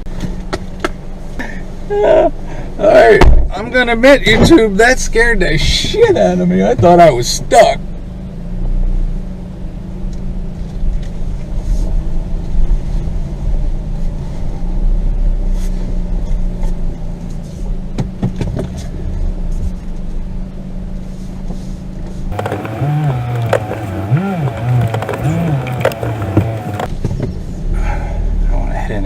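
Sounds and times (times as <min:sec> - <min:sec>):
car engine at low speed: 0:00.0 - 0:29.0
sharp knocks: 0:22.3 - 0:26.9.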